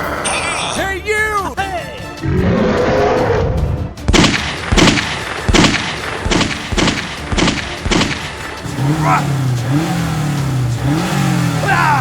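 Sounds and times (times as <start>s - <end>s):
sharp ringing bangs: 4.1s - 8.6s.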